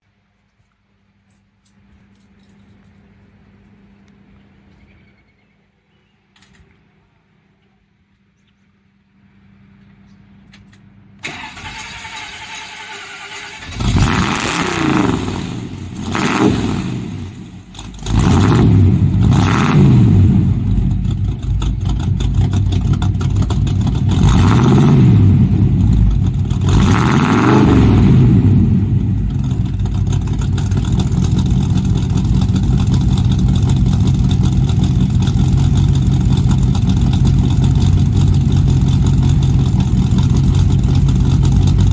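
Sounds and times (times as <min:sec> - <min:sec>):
car engine idling: 0:09.0 - 0:41.9
car engine revving: 0:11.2 - 0:41.9
engine cranking: 0:11.2 - 0:41.9.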